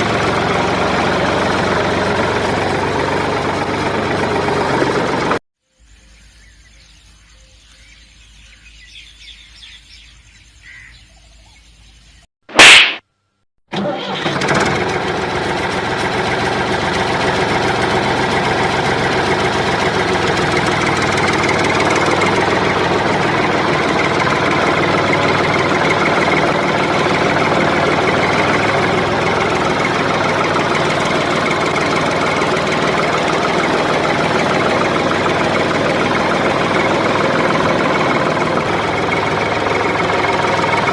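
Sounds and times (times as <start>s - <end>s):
engine starting and running: 0.0s - 5.4s, 13.7s - 40.9s
loud short burst: 12.5s - 13.0s.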